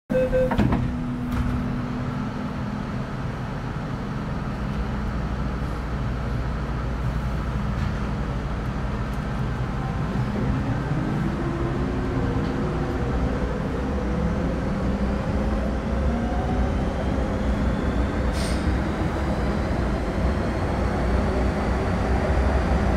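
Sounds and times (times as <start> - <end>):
tone: 0.1 - 0.6
train low rumble: 0.1 - 22.9
rising whine of train motor: 8.7 - 22.9.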